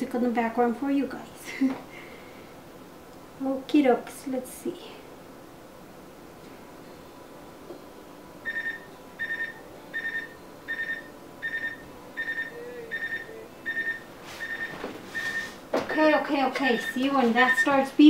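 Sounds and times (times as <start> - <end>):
refrigerator alarm beeping: 8.4 - 17.9.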